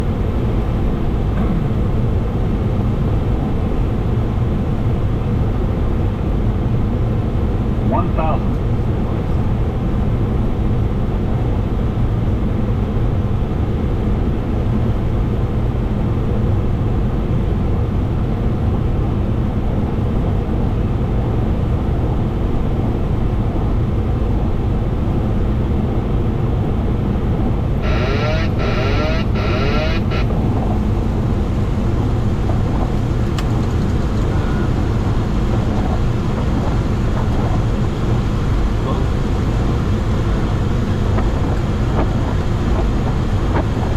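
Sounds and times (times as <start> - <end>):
airflow and jet engine noise: 0.0 - 43.9
pulsing electronic tone: 27.8 - 30.3.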